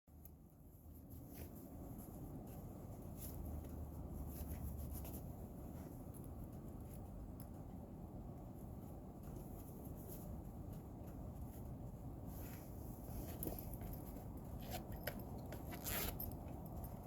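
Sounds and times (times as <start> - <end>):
scraping and ticking handling noises: 0.2 - 17.0.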